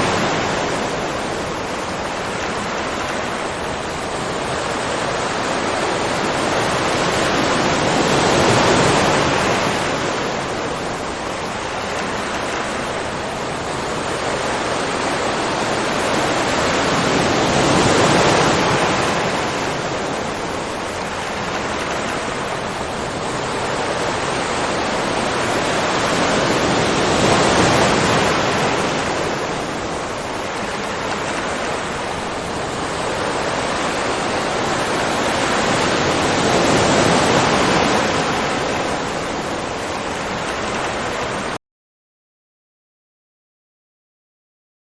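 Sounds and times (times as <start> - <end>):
ocean waves washing ashore: 0.0 - 41.6.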